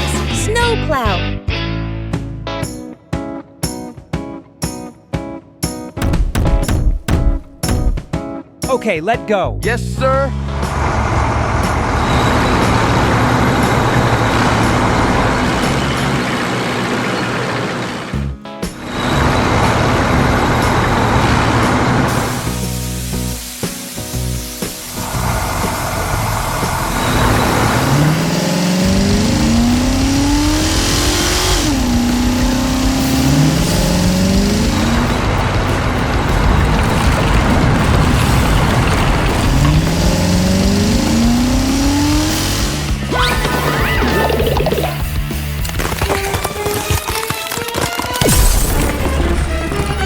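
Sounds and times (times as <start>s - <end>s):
cartoon engine rumble: 25.0s - 45.2s.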